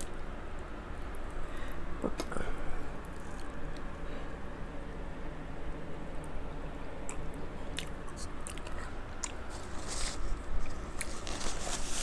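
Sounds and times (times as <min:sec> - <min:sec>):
fan humming: 0:00.0 - 0:12.0
person chewing food: 0:07.1 - 0:11.2.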